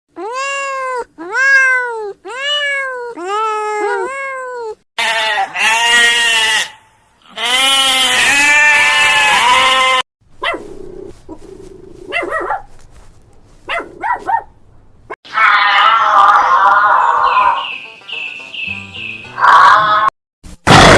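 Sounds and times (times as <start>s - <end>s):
animal cries wavering in pitch: 0.2s - 6.6s, 15.3s - 17.6s.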